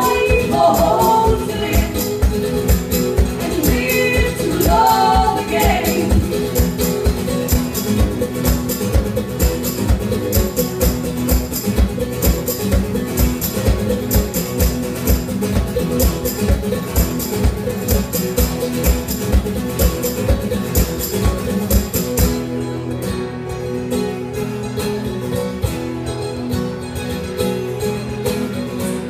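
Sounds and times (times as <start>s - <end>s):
person singing: 0.0s - 2.2s, 3.4s - 6.6s
live band guitars: 0.0s - 29.0s.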